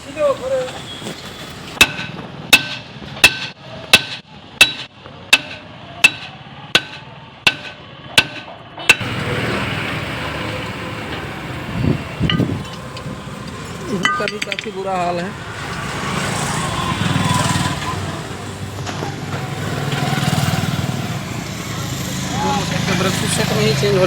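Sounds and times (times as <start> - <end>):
hammer striking metal drum: 1.8 - 9.1, 14.0 - 14.8.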